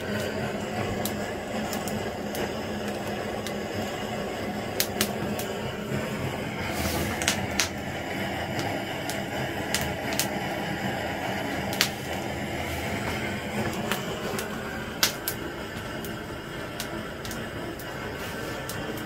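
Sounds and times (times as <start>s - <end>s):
wood fire crackling: 0.0s - 19.0s
sharp pops: 4.7s - 5.7s, 6.7s - 10.7s, 11.3s - 16.2s.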